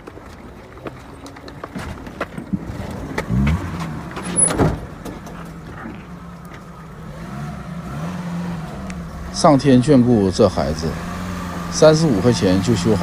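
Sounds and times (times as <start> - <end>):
car engine starting and running: 0.0 - 13.0.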